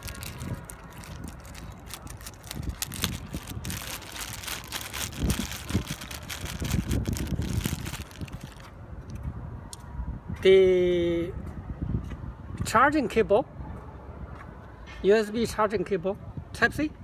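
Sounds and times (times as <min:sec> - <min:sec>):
packaging rustling and clicking: 0:00.0 - 0:08.7
wind buffeting microphone: 0:00.0 - 0:14.6.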